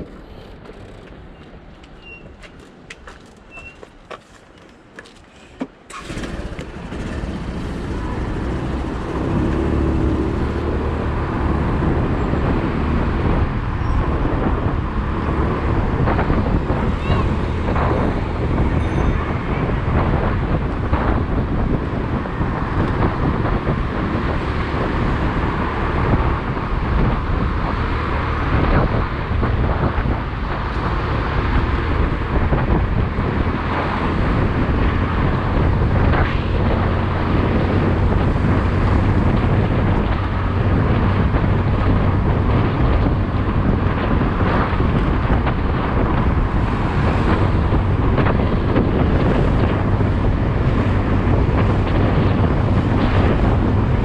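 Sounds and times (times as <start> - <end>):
road noise: 0.0 - 54.0
wind rushing over microphone: 5.7 - 54.0
motorcycle engine running: 6.0 - 13.4.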